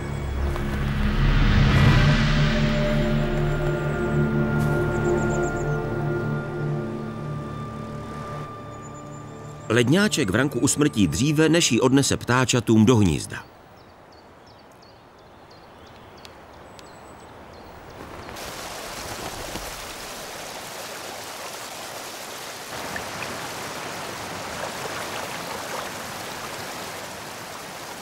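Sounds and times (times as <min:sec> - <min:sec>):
river rushing over stones: 0:17.7 - 0:28.0.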